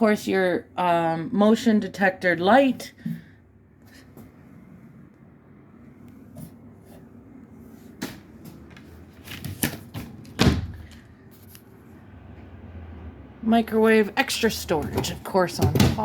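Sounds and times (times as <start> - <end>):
cupboard doors knocking and clattering: 14.8 - 16.0.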